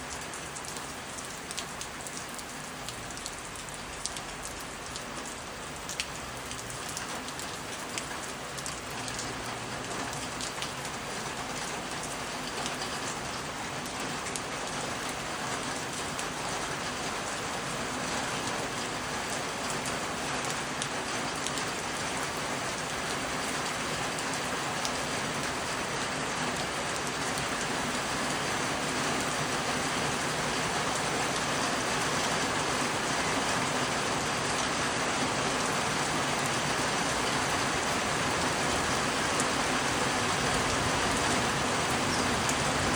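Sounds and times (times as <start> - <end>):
raindrops ticking: 0.0 - 16.4
rain falling: 0.0 - 42.9.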